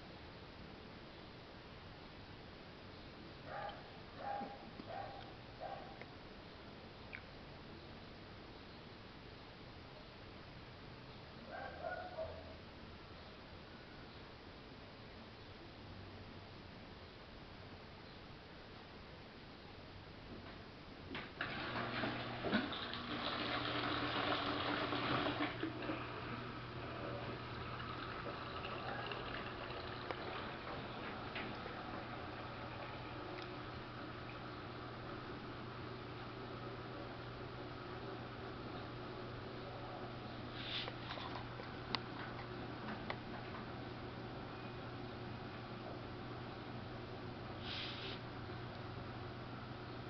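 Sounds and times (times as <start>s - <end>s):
low electric hum: 0.0s - 50.0s
water rushing in washing machine: 21.2s - 35.8s.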